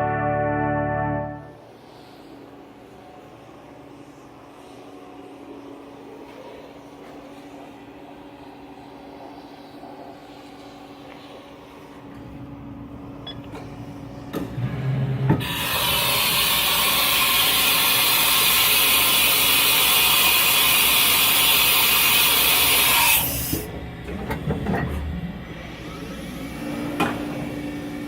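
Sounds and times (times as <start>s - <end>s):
machining center running: 0.0s - 2.0s
loud steady hiss: 15.5s - 23.4s.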